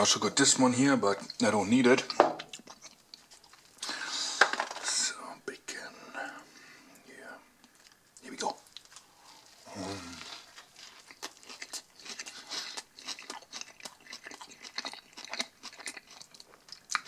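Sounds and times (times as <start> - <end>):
person chewing crunchy food: 2.0 - 4.5, 8.8 - 17.0.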